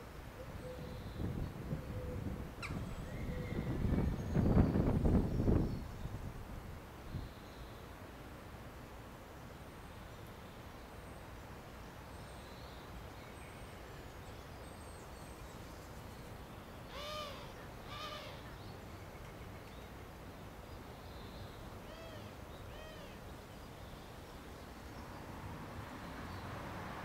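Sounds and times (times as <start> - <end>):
bird calling: 2.0 - 3.8, 16.9 - 18.6, 21.8 - 23.2.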